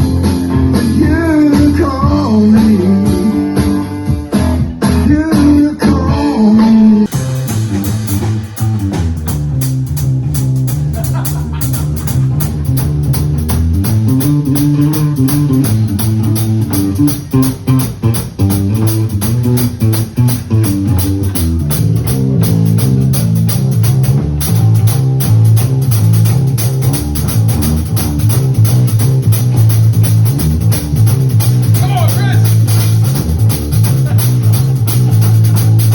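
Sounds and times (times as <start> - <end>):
drum kit with cymbal beat: 0.0 - 5.5, 7.0 - 35.9
bass guitar line: 0.0 - 35.9
electric guitar: 10.2 - 35.9.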